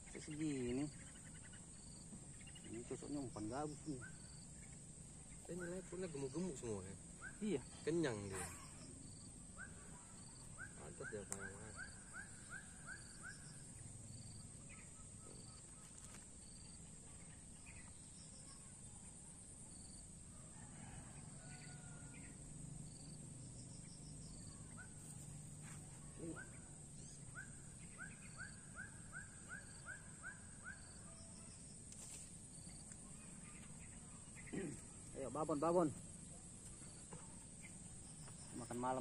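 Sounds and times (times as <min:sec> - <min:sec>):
bird chirping: 0:00.0 - 0:19.2, 0:26.0 - 0:31.8.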